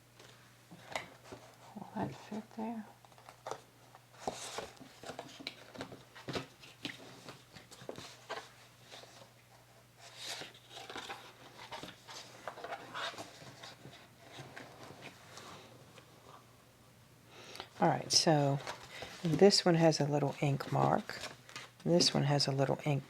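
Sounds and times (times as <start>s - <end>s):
faint steady hum: 0.0s - 23.0s
paper rustling: 3.0s - 16.4s, 18.0s - 22.4s.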